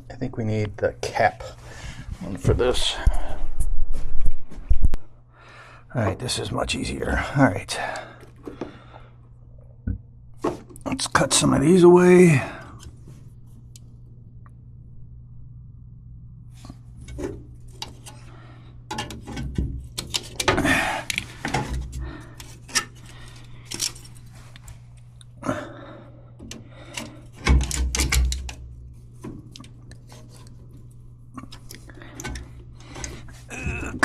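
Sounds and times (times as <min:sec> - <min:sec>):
low hum: 0:00.0 - 0:34.0
metal fins clicking and scraping: 0:17.0 - 0:18.3, 0:18.9 - 0:24.7
knocking and handling: 0:26.4 - 0:30.8.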